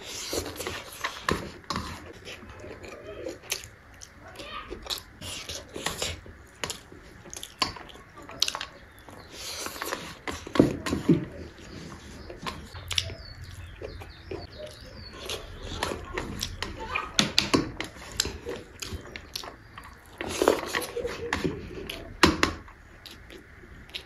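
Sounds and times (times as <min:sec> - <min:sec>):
fingers working rice on plate: 0:00.0 - 0:24.0
wet chewing and lip smacks: 0:12.2 - 0:16.7, 0:17.8 - 0:24.0.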